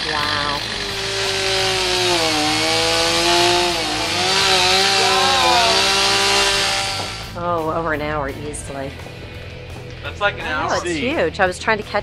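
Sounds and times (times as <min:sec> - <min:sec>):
chainsaw cutting wood: 0:00.0 - 0:07.4.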